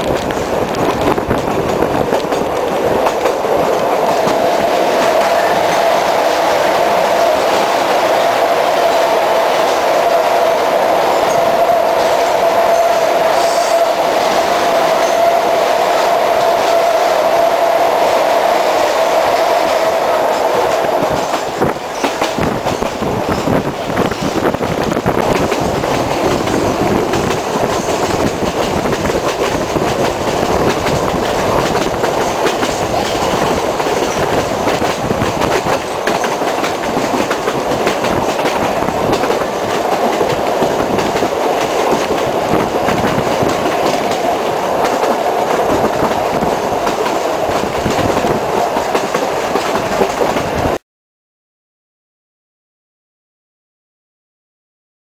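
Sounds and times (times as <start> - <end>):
wheels clicking over rail joints: 0.0 - 6.4, 19.7 - 50.7
train rumbling: 0.0 - 50.8.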